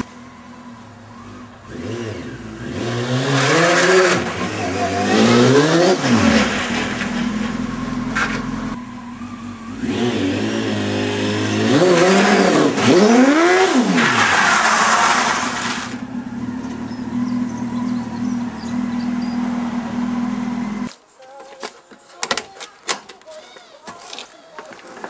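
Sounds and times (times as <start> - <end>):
car engine revving hard: 1.2 - 7.6, 9.6 - 20.9.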